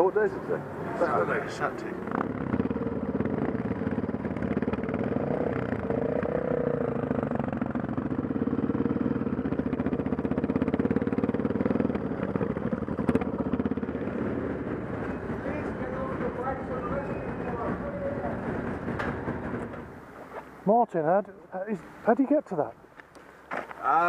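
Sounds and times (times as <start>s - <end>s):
dirt bike engine running: 1.1s - 20.1s.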